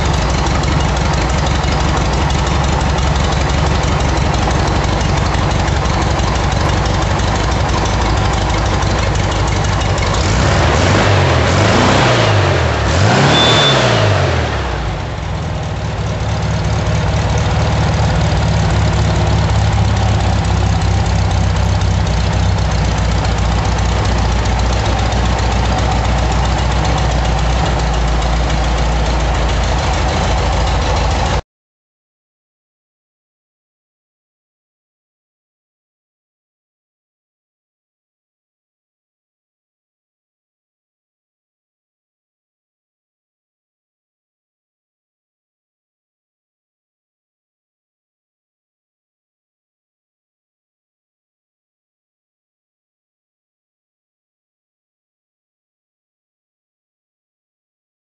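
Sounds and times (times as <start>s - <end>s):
car engine idling and revving: 0.0s - 31.4s.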